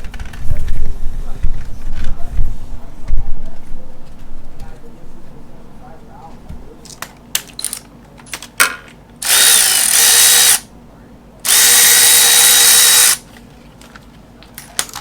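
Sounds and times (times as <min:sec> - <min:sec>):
power tool spinning out bolt: 0:09.2 - 0:10.7, 0:11.5 - 0:13.2.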